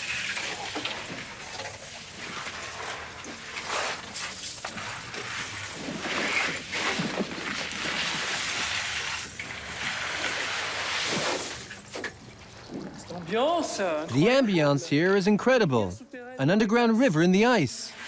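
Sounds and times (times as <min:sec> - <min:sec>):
water splashing and sloshing: 0:00.0 - 0:14.3.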